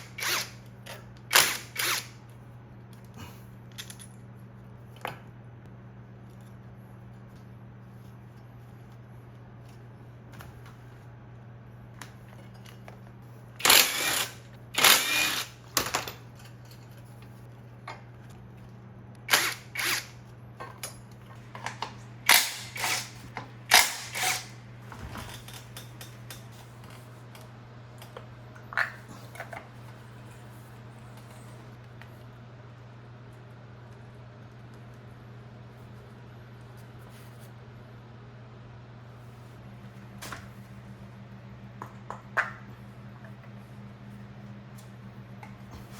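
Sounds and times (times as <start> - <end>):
power tool noise: 0.0 - 0.6, 1.3 - 2.2, 13.6 - 15.6, 19.3 - 20.2, 22.2 - 24.6
steady low hum: 0.0 - 45.9.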